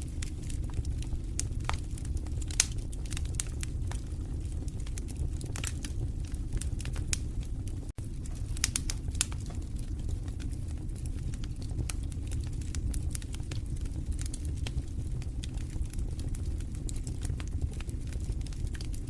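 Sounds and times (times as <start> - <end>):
fire crackling and popping: 0.0 - 19.0
low rumble of flames: 0.0 - 19.0.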